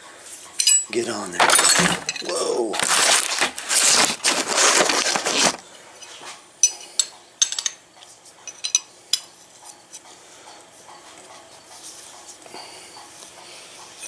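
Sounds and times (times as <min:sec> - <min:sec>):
metal tools clinking on workbench: 0:00.6 - 0:05.6
loud rustling: 0:01.2 - 0:05.6.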